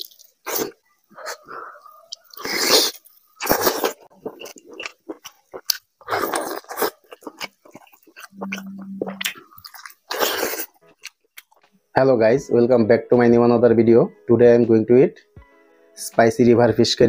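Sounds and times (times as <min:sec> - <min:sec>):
wet chewing and biting: 0:00.0 - 0:11.7
low steady hum: 0:07.1 - 0:11.2.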